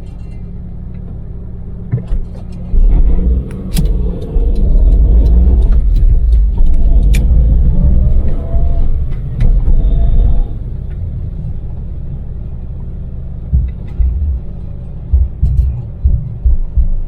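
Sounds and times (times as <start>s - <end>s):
engine rumble with faint whine: 0.0s - 17.0s
road noise: 0.0s - 17.0s
short low thumps: 1.9s - 11.9s, 13.4s - 17.0s.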